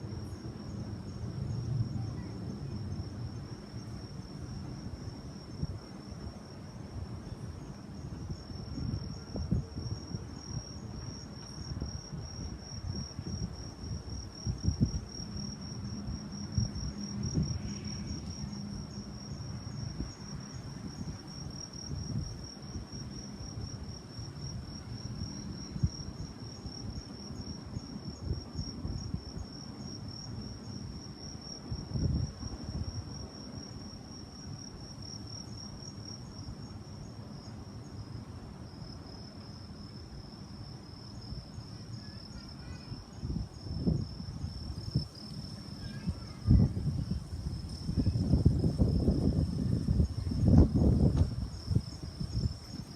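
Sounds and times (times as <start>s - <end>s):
wind buffeting microphone: 4.5s - 33.4s, 43.1s - 52.9s.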